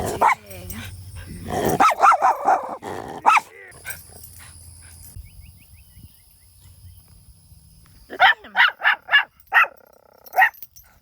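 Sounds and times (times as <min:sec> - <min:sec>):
dog barking sharply: 0:01.8 - 0:03.5.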